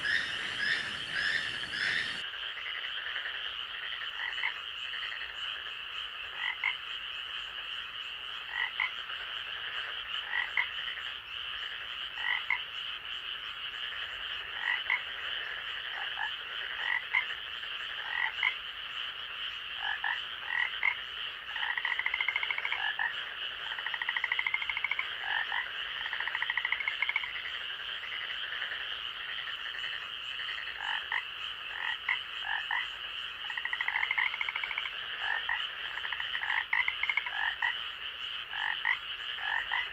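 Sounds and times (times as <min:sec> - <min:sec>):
rattling frog trills: 0:00.0 - 0:05.4, 0:19.8 - 0:37.8
frogs croaking: 0:00.0 - 0:39.9
high-pitched frog chorus: 0:00.0 - 0:39.9.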